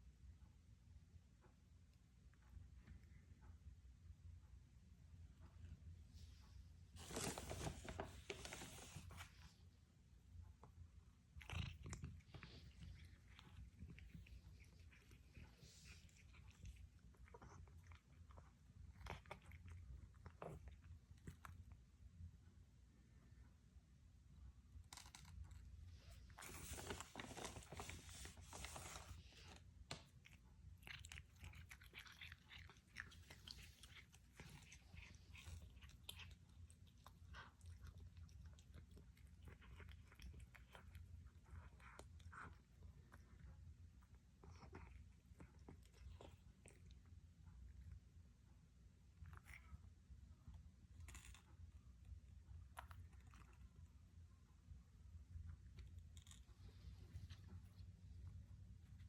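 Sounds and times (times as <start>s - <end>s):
cat crunching food: 10.5s - 22.2s, 24.6s - 48.1s, 48.8s - 59.0s.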